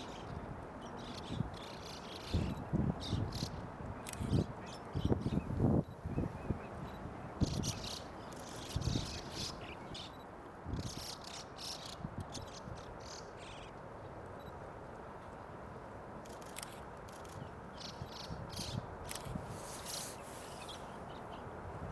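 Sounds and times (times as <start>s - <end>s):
background hiss: 0.0s - 21.9s
starlings chattering: 19.5s - 21.2s.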